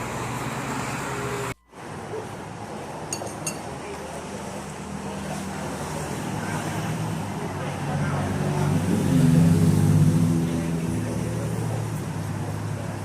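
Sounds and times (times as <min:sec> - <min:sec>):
traffic: 0:00.0 - 0:13.0
tableware clinking: 0:03.1 - 0:03.7.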